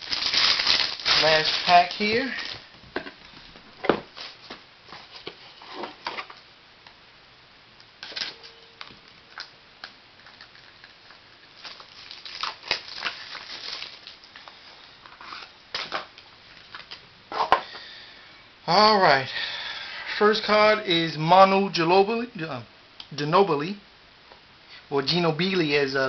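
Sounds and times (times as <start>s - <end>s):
card pack clicks and rustles: 0.0s - 2.6s, 8.0s - 17.0s.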